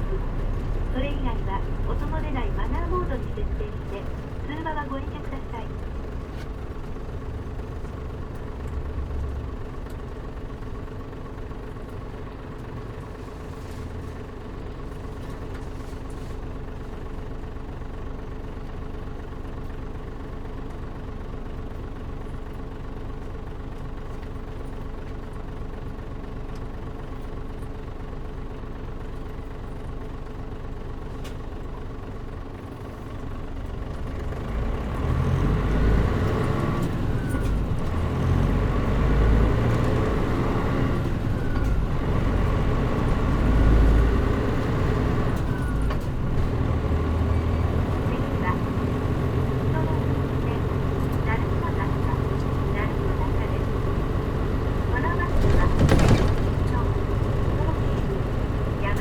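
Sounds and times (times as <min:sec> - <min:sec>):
bus diesel engine idling: 0:00.0 - 0:59.0.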